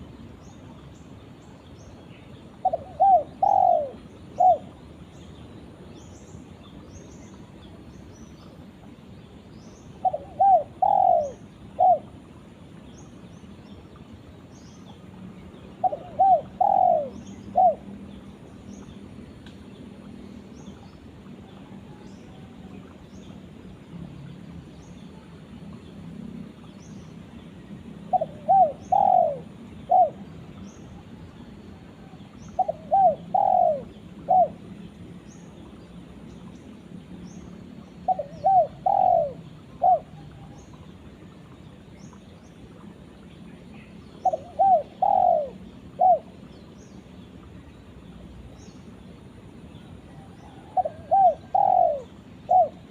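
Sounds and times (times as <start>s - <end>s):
dove cooing: 2.6s - 4.8s, 10.0s - 12.2s, 15.8s - 17.9s, 28.1s - 30.4s, 31.7s - 34.7s, 38.0s - 40.7s, 44.2s - 46.4s, 50.0s - 52.9s.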